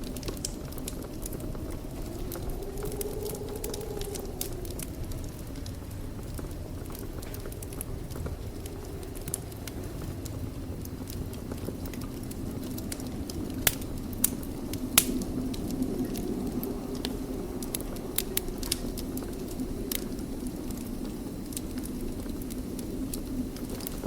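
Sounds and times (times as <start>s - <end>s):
flames rushing: 0.0s - 24.0s
wood fire crackling and popping: 0.0s - 24.0s.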